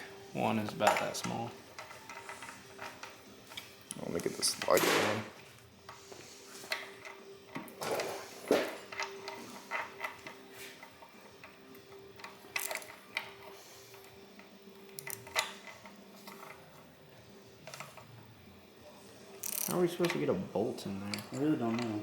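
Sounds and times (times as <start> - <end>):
socket ratchet clicking: 12.2 - 13.3, 14.8 - 15.9, 19.4 - 20.2.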